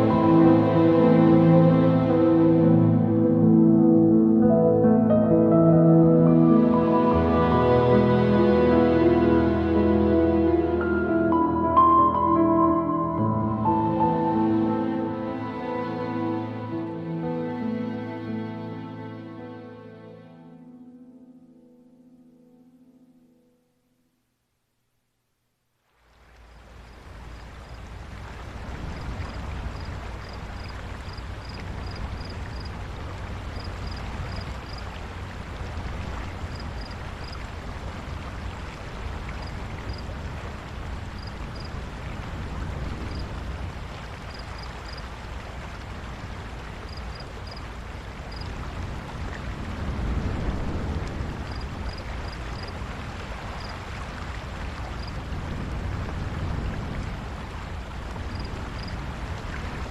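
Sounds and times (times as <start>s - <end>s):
rushing noise with low rumble: 26.6s - 59.9s.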